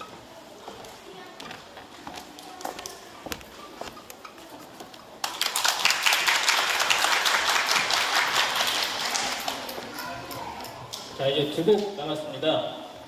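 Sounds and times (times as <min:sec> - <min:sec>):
audience applause: 0:05.2 - 0:10.5.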